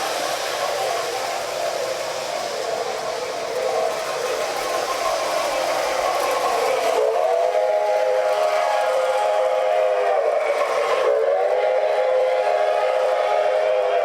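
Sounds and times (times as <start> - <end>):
model train chime whistle: 3.4 - 14.0.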